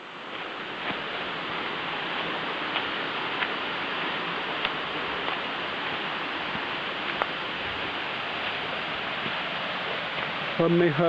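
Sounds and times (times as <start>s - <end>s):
waterfall pouring into pool: 0.0s - 11.0s.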